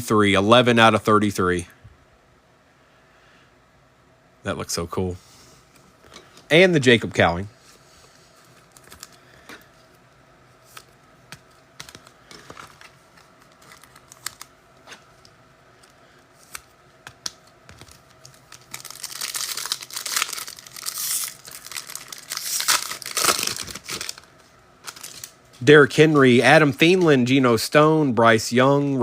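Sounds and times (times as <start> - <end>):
card pack wrapper tearing and crinkling: 8.6 - 9.2, 10.7 - 15.0, 15.8 - 25.4.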